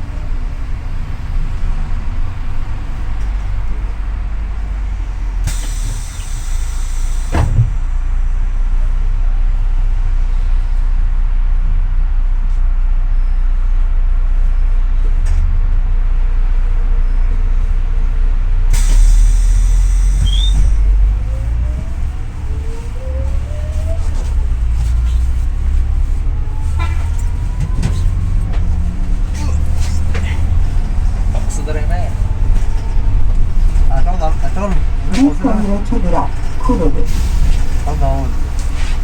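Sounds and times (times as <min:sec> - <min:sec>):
bus engine rumbling: 0:00.0 - 0:39.0
compressed air hissing: 0:05.4 - 0:07.8, 0:18.8 - 0:21.0.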